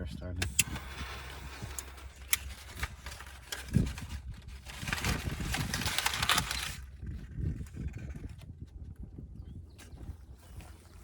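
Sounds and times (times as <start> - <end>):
fire rustling and hissing: 0.6 - 8.2.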